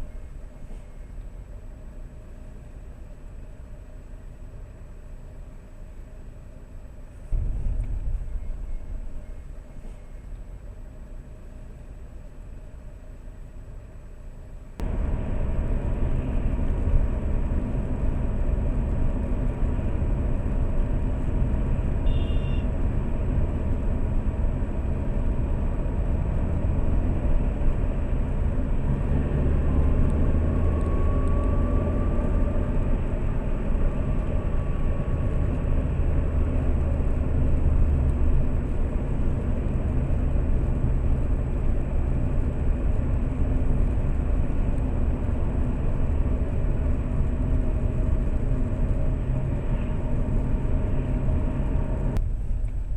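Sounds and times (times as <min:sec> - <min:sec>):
car engine and road rumble: 0:00.0 - 0:52.9.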